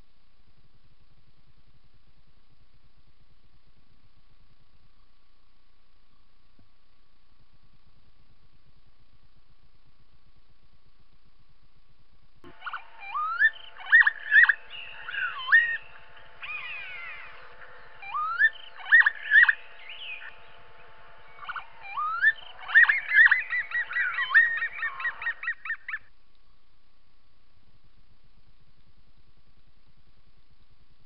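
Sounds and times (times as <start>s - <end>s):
fast chattering bird notes: 12.5s - 26.0s
rising whistled bird notes: 12.5s - 26.1s.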